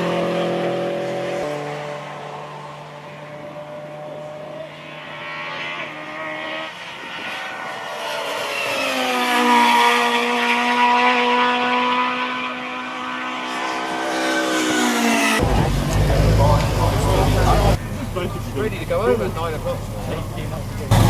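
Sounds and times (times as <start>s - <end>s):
rally car engine at high revs: 0.0s - 17.8s, 19.7s - 21.0s
quieter engine note: 15.0s - 21.0s.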